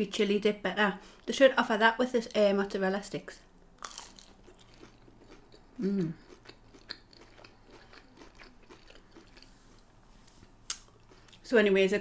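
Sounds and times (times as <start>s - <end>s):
soft crunching chewing: 3.8s - 11.5s
person humming mm: 5.8s - 6.2s.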